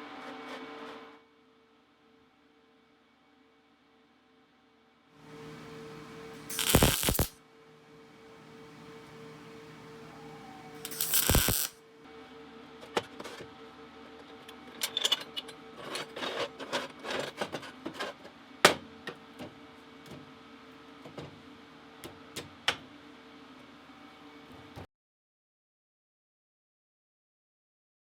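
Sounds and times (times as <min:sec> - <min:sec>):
welder crackling: 0:06.4 - 0:07.4, 0:10.8 - 0:11.8
metal parts clicking and knocking: 0:14.8 - 0:16.5.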